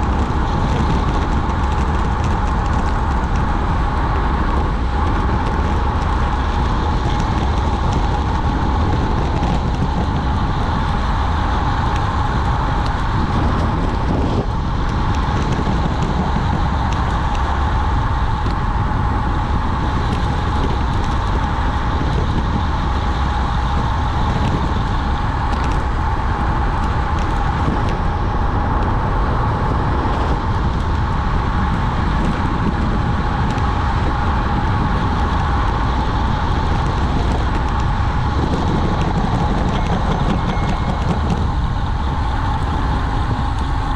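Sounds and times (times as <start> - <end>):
bicycle tyre noise: 0.0 - 43.9
constant hum: 0.0 - 43.9
wind buffeting microphone: 0.0 - 43.9.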